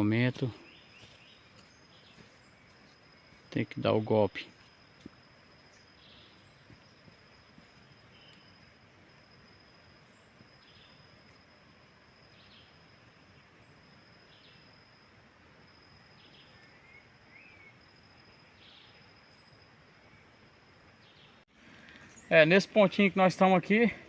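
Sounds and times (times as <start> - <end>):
faint bird chirps: 0.0 - 23.1
high insect drone: 0.0 - 24.0.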